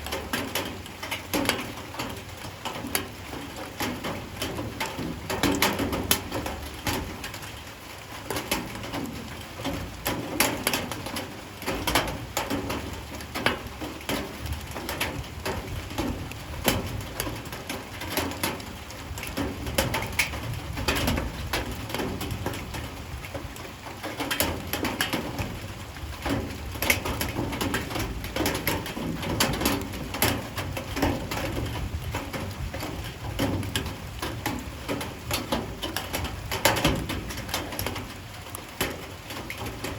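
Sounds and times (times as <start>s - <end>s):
light rain dripping: 0.0s - 39.9s.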